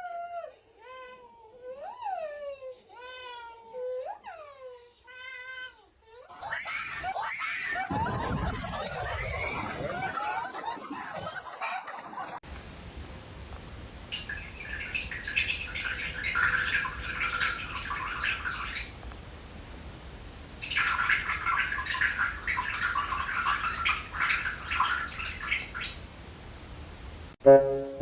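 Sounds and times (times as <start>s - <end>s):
low steady hum: 12.4s - 28.0s
birds chirping rapidly: 12.5s - 26.3s.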